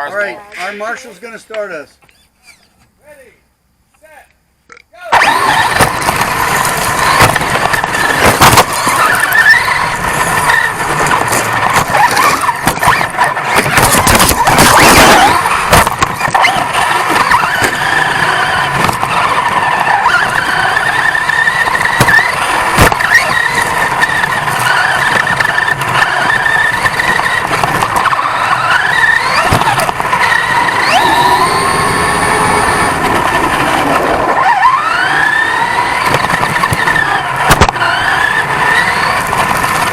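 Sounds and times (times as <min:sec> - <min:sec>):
toy truck motor whining: 0:02.0 - 0:02.8, 0:05.2 - 0:39.9
tyre and chassis noise: 0:03.7 - 0:39.9
sharp knocks on bumps: 0:36.1 - 0:37.8.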